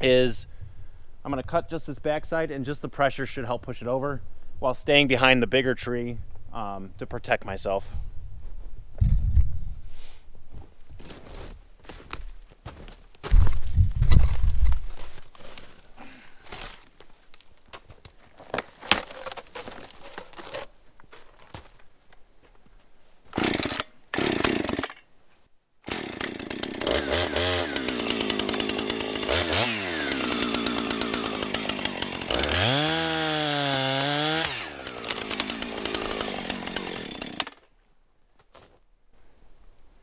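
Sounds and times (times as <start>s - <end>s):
chainsaw cutting tree: 23.4s - 24.9s, 25.8s - 37.7s.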